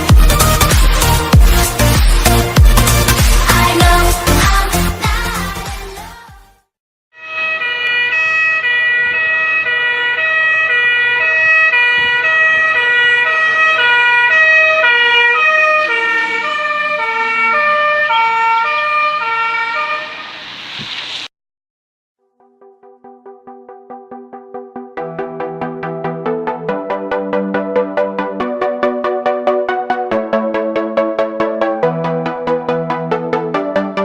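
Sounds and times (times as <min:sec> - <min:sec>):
two-tone emergency siren: 0:07.2 - 0:20.7.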